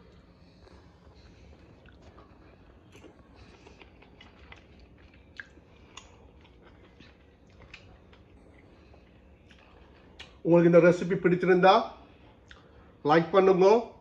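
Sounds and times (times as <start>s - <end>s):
man chewing: 0.0s - 10.4s, 12.1s - 13.0s
soft mouth clicks and smacks: 1.7s - 10.4s, 12.4s - 12.7s.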